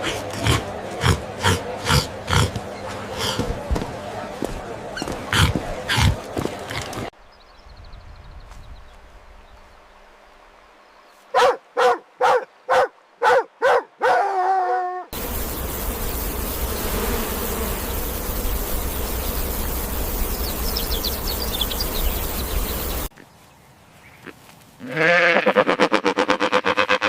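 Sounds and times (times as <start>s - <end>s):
dog barking: 11.4s - 14.5s
steady hiss: 15.2s - 23.1s.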